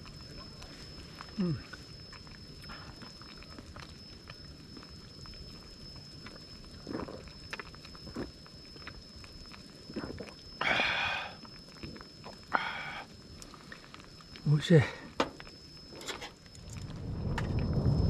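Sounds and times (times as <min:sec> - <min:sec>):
faint high whine: 0:00.0 - 0:18.0
person chewing: 0:06.8 - 0:09.0.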